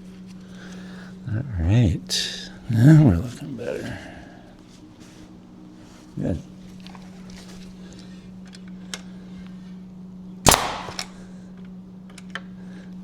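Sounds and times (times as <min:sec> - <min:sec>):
staple gun firing: 0:10.5 - 0:11.2.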